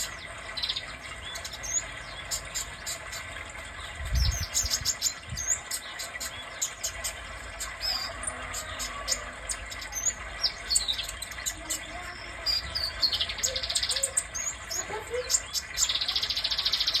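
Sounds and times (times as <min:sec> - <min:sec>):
bird singing high chirps: 0:04.1 - 0:17.0.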